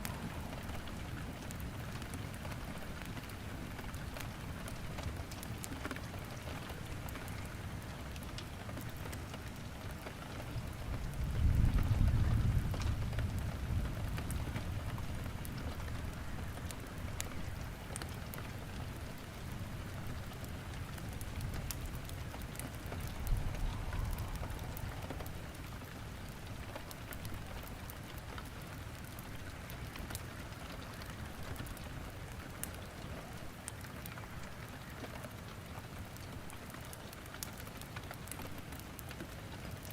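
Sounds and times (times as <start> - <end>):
steady rain: 0.0 - 39.9
wood fire crackling: 0.0 - 39.9
thunder rumbling: 11.0 - 16.1, 21.6 - 27.5.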